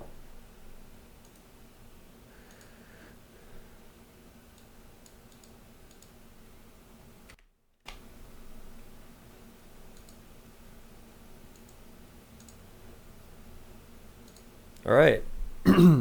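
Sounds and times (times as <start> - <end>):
steady low hum: 0.0 - 7.3, 7.9 - 16.0
computer mouse and keyboard clicks: 1.2 - 1.5, 2.4 - 2.8, 4.5 - 6.2, 9.9 - 10.2, 11.5 - 12.6, 14.2 - 14.9.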